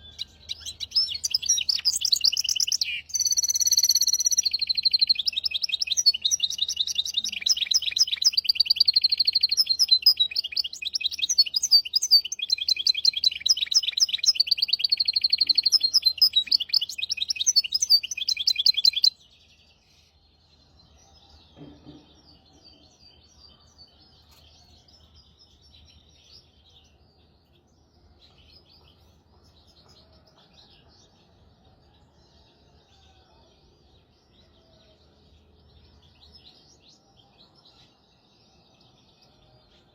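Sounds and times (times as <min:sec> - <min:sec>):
finch singing trills: 0:00.0 - 0:19.2
faint bird chirps: 0:00.0 - 0:39.9.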